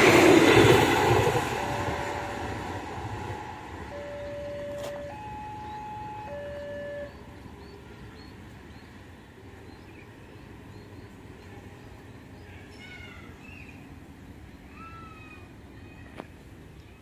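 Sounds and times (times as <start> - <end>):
passenger train rumbling: 0.0 - 17.0
bird chirping: 5.4 - 9.0.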